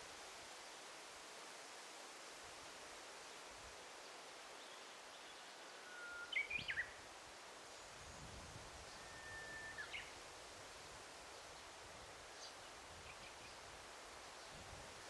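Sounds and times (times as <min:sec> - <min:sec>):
faint forest hiss: 0:00.0 - 0:15.0
songbird whistling: 0:05.8 - 0:07.0, 0:09.0 - 0:10.1.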